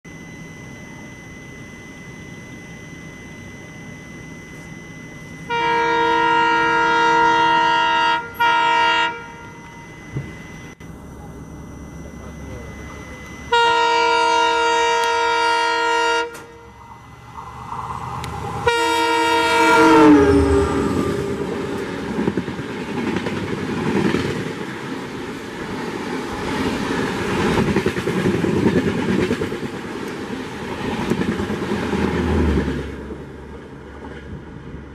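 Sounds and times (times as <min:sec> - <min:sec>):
locomotive air horn blast: 0:05.5 - 0:09.6, 0:13.5 - 0:16.9, 0:18.2 - 0:22.0
train coaches rushing past: 0:16.3 - 0:34.9.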